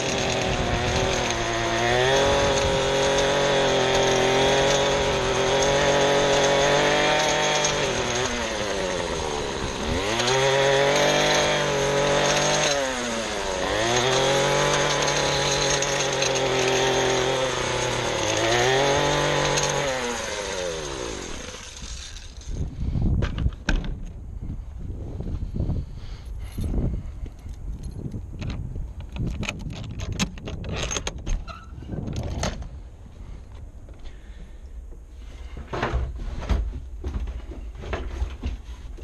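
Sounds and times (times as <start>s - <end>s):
two-stroke engine revving: 0.0s - 22.7s
clicks and knocks of handling: 27.8s - 31.4s.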